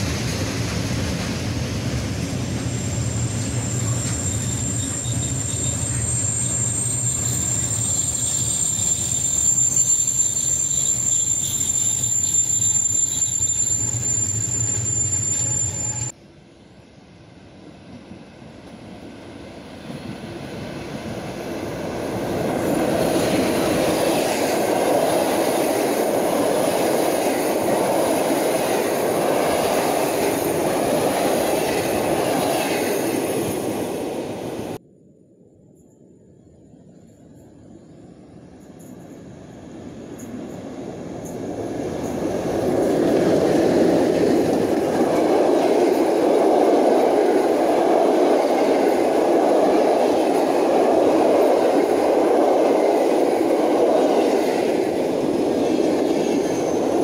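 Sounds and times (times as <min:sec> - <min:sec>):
freight train rumbling: 0:00.0 - 0:34.8, 0:37.3 - 0:57.0
passenger train passing: 0:00.0 - 0:34.8, 0:36.7 - 0:57.0
high-pitched brake squeal: 0:02.6 - 0:16.2.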